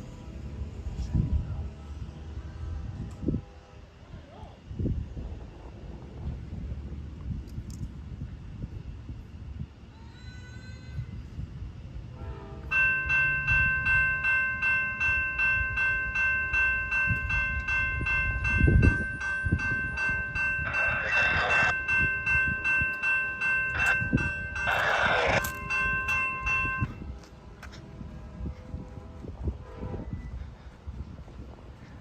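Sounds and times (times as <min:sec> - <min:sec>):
railroad crossing bell ringing: 0:12.5 - 0:27.2.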